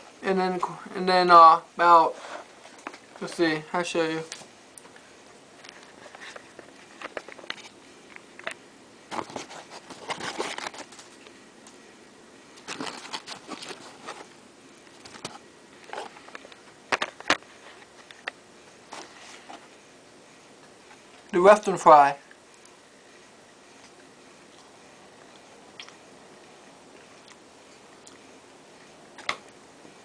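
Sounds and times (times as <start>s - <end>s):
packaging rustling: 9.1s - 11.2s, 12.6s - 18.3s.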